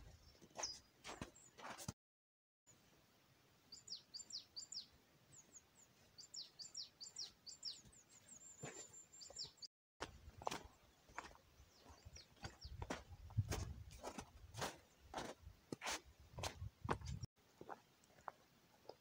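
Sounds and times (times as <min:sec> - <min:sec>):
songbird chirping: 0:00.0 - 0:01.8, 0:03.5 - 0:15.4
footsteps: 0:00.0 - 0:02.0, 0:08.6 - 0:18.4.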